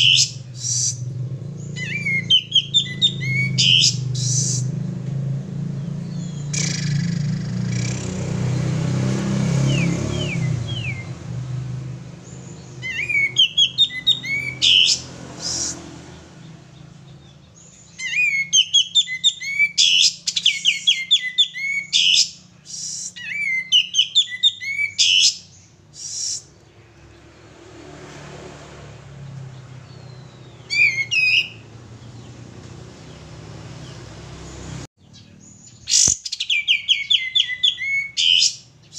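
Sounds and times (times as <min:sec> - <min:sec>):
songbird chirping and whistling: 0:00.0 - 0:04.8, 0:05.8 - 0:11.3, 0:12.2 - 0:15.8, 0:16.8 - 0:26.6, 0:29.8 - 0:32.4, 0:35.0 - 0:38.9.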